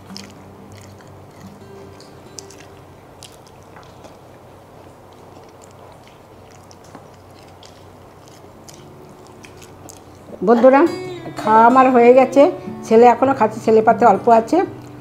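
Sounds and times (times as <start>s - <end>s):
mouth chewing with wet clicks: 0.0s - 11.3s, 14.7s - 15.0s.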